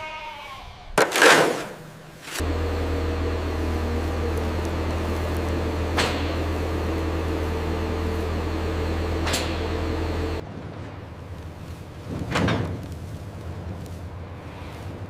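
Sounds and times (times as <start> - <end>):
low mechanical hum: 2.0 - 15.0.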